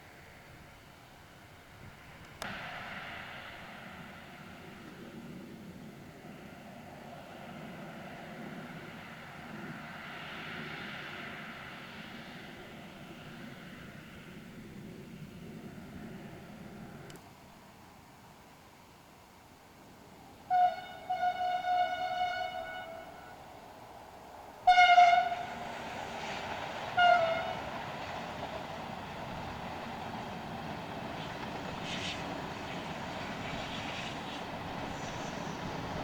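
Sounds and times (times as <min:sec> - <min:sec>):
train running: 0:00.0 - 0:36.0
train horn blasts: 0:20.4 - 0:23.6, 0:24.6 - 0:25.7, 0:26.9 - 0:27.7.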